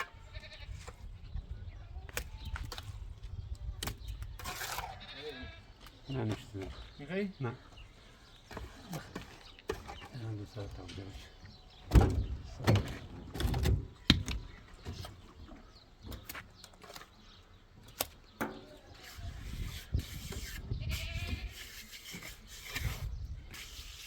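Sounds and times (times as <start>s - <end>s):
livestock bleating: 0.1s - 0.8s, 4.9s - 5.7s, 20.7s - 21.6s
sharp knocks and thumps: 11.8s - 15.2s.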